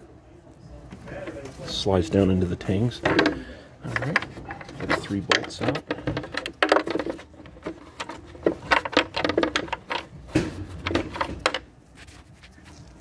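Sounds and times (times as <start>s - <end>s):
hand tools clicking and knocking: 3.0s - 11.7s.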